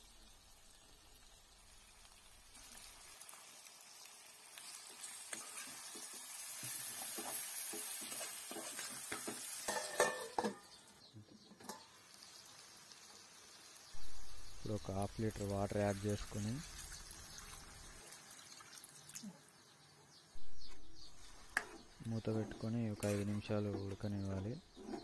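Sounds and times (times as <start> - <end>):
curry sizzling in a pan: 0.0 - 19.6
spoon scraping and tapping pan: 5.3 - 10.7, 11.5 - 11.9, 21.4 - 21.9.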